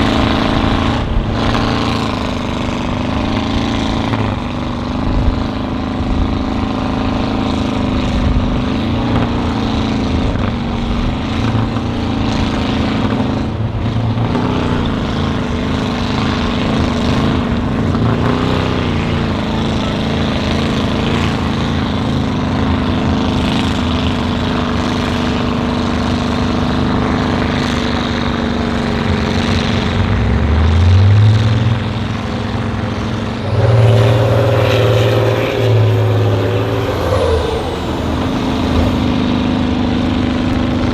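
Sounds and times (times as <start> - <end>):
truck engine revving: 28.2 - 40.9.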